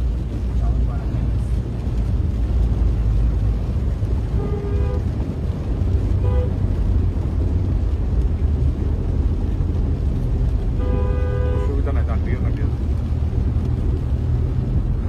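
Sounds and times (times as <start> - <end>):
low rumbling noise: 0.0 - 15.0
horn toots: 4.3 - 5.2, 6.2 - 6.6, 10.8 - 11.9.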